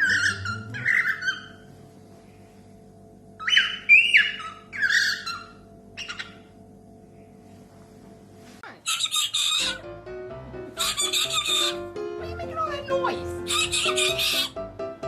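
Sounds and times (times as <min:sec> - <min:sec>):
bird chirping and squawking: 0:00.0 - 0:01.7, 0:03.4 - 0:06.6, 0:08.8 - 0:09.8, 0:10.7 - 0:11.9, 0:13.3 - 0:14.6.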